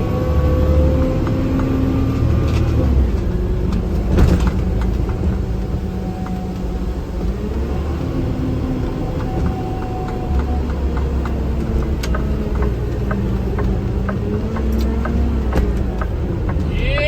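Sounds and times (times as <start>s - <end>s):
vehicle engine and road rumble: 0.0s - 17.0s
faint regular ticking: 3.3s - 16.8s.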